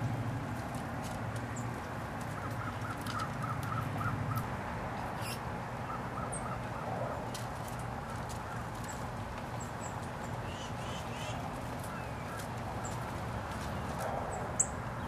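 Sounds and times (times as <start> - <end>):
dry leaves rustling: 7.3 - 14.6.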